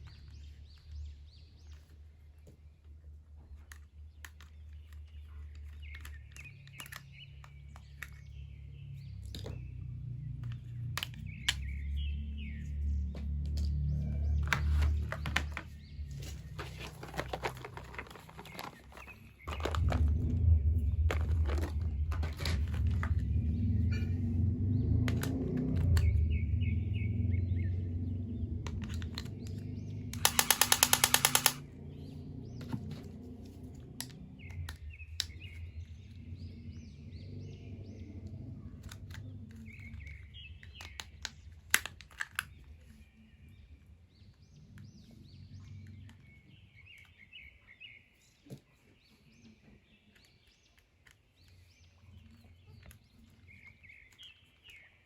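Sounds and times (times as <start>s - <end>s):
small birds chirping: 0.0s - 55.0s
low rumble: 8.7s - 40.8s
loud rapid clicking rattle: 30.1s - 31.7s.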